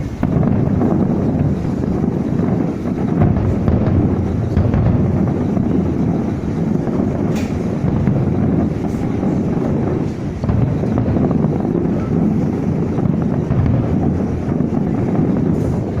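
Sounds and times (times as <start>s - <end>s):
wind buffeting microphone: 0.0s - 16.0s
short hiss: 7.3s - 7.8s.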